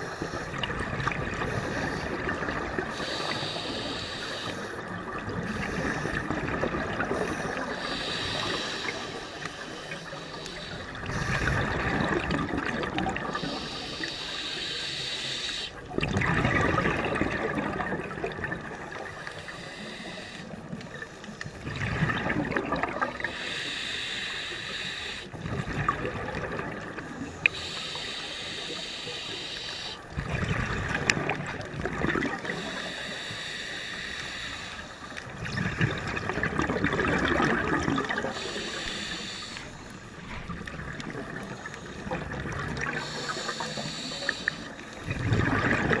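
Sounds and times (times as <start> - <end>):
regulator hissing inhale: 0.0 - 0.7, 1.4 - 2.2, 2.9 - 6.4, 7.2 - 11.8, 13.3 - 15.8, 19.0 - 21.6, 23.2 - 25.3, 27.0 - 30.2, 32.4 - 35.4, 38.1 - 45.2
exhaust bubbles bubbling: 11.2 - 13.5, 15.9 - 19.1, 21.6 - 23.3, 30.1 - 32.6, 35.3 - 38.4, 45.0 - 46.0.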